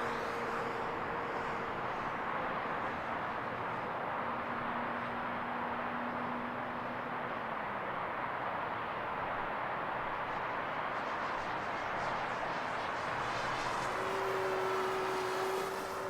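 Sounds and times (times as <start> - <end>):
model plane propeller whir: 10.3 - 16.0.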